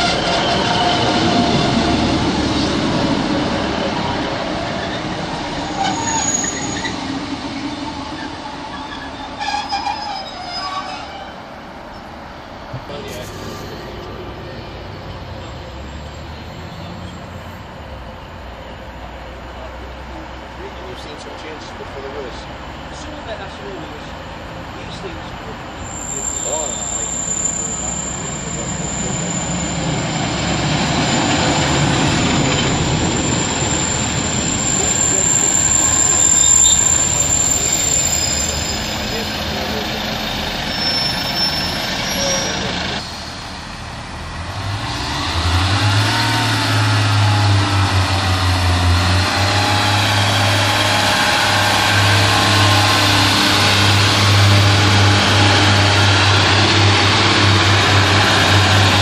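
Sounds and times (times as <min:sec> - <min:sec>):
diesel train rumbling: 0:00.0 - 0:59.0
brake squeals with clicks: 0:05.7 - 0:07.0, 0:25.8 - 0:30.0, 0:32.5 - 0:43.1.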